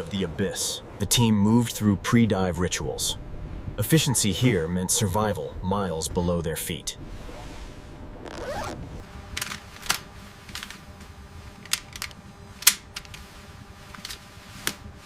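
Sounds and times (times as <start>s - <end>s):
steady low hum: 0.0s - 15.0s
rising swoop: 7.0s - 9.1s.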